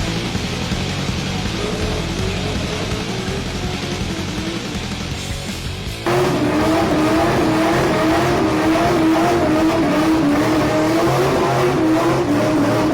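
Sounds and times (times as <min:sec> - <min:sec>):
engine revving high: 0:06.0 - 0:12.9.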